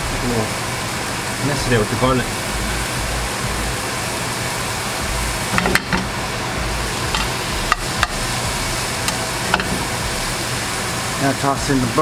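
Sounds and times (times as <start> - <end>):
shrimp sizzling in oil: 0.0 - 12.0
clicks and knocks in pan: 5.5 - 6.1, 9.1 - 9.9.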